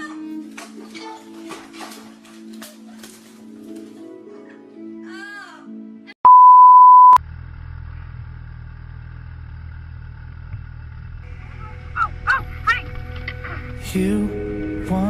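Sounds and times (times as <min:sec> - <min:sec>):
music: 0:00.0 - 0:06.2, 0:11.3 - 0:15.0
loud electronic bleep: 0:06.3 - 0:07.2.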